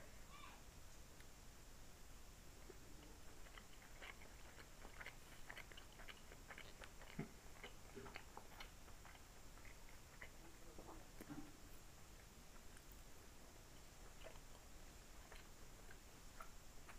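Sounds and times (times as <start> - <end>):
wet chewing mouth clicks and smacks: 2.7 - 11.4, 13.8 - 16.9.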